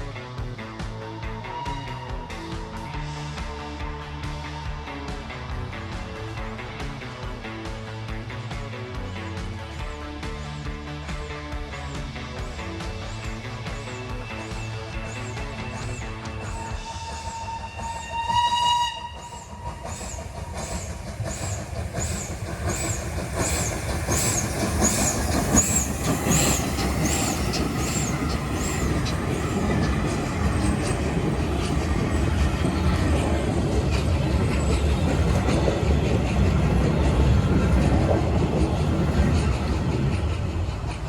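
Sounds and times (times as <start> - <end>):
steam locomotive exhaust beats: 0.0 - 41.0
train rumble: 0.0 - 41.0
steam locomotive whistle: 1.3 - 3.2, 14.4 - 31.3.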